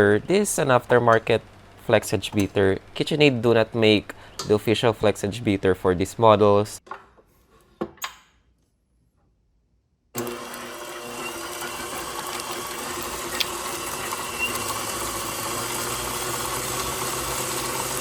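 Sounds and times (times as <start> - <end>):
stand mixer motor running: 10.2 - 18.0.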